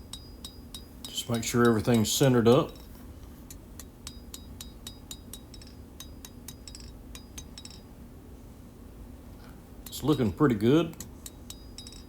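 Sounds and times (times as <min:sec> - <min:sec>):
hammer tapping on anvil: 0:00.0 - 0:02.9, 0:03.8 - 0:07.9, 0:10.9 - 0:12.0.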